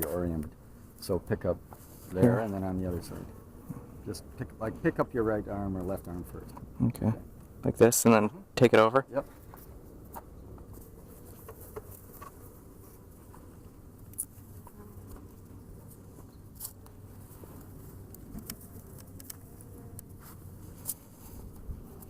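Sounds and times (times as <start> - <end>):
hive boxes clicking and knocking: 10.1 - 12.6, 17.7 - 20.2
honeybees buzzing: 10.6 - 22.0.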